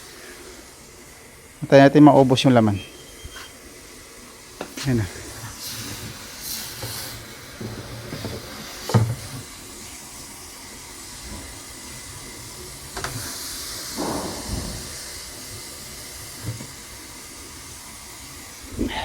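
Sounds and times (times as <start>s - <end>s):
fuel spraying with hiss: 2.8s - 19.0s
sharp knock: 14.0s - 15.4s.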